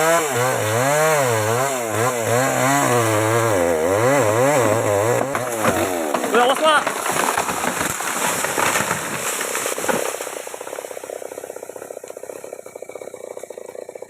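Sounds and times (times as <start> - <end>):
wood cracking and snapping: 0.1 - 14.0
fast even rattle: 6.2 - 14.0.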